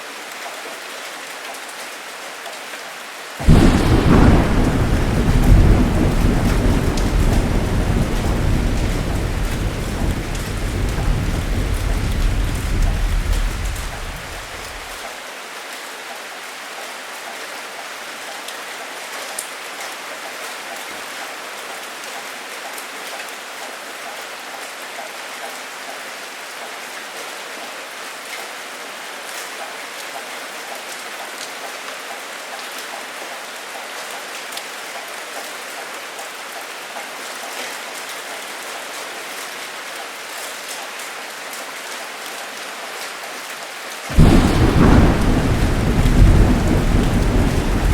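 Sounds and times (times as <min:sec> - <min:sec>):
heavy rain: 0:00.0 - 0:47.9
low thunder rumble: 0:03.4 - 0:15.0, 0:44.1 - 0:47.9.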